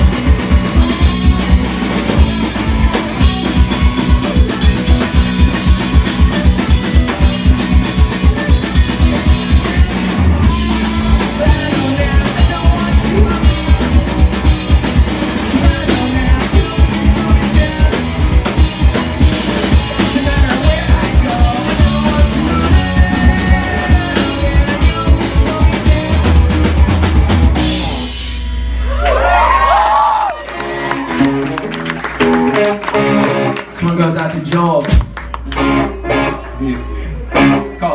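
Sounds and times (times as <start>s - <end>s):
fast kick-drum beat: 0.0s - 28.0s
live rock band: 0.0s - 37.9s.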